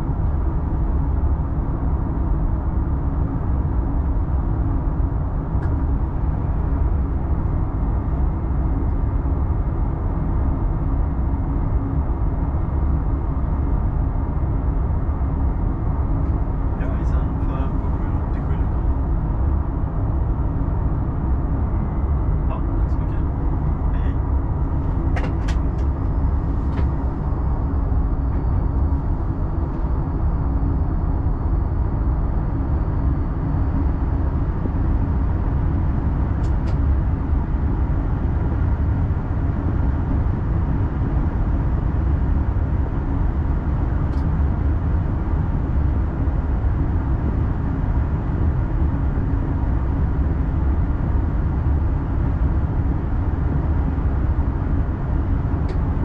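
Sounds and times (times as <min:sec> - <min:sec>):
train rumbling in motion: 0:16.2 - 0:19.6, 0:21.3 - 0:30.2.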